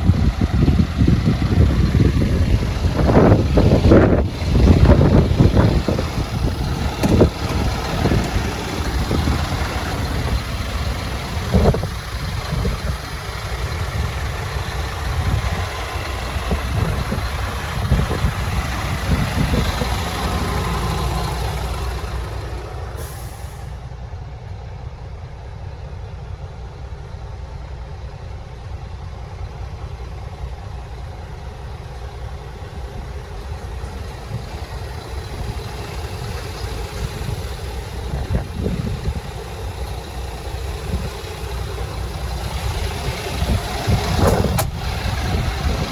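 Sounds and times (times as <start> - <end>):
diesel truck engine idling: 0.0 - 45.9
hiss: 23.0 - 23.8.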